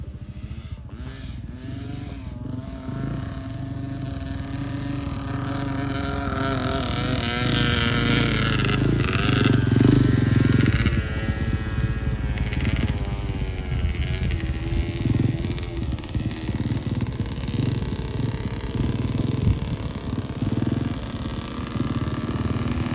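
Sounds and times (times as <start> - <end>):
dirt bike engine running: 0.0 - 22.9.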